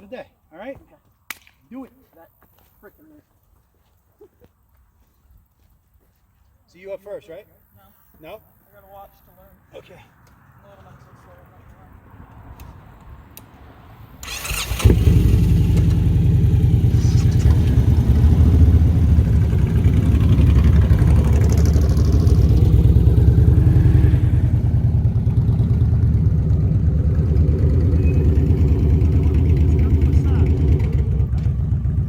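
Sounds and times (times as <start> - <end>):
motorcycle starter cranking: 14.2 - 18.1
motorcycle engine running: 14.3 - 32.0.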